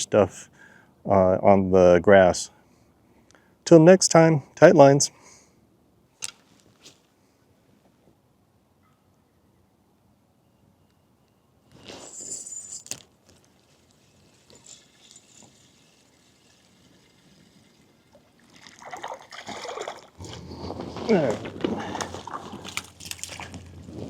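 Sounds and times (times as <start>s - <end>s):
water splashing and trickling: 12.9s - 24.0s.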